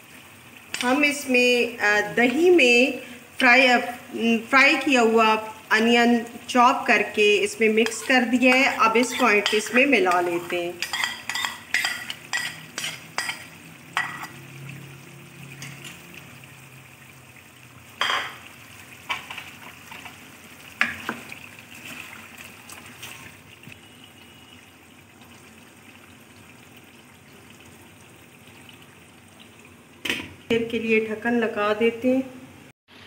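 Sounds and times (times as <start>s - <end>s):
chicken sizzling in a wok: 0.0s - 26.6s
metal spoon scraping a plate: 7.8s - 13.4s.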